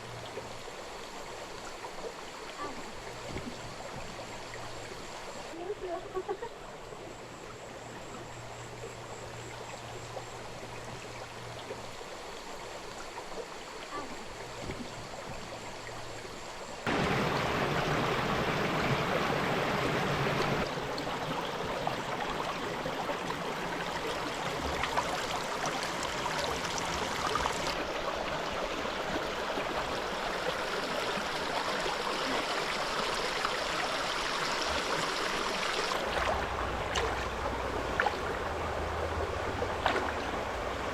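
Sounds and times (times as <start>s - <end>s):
stream water flowing: 0.0s - 40.9s.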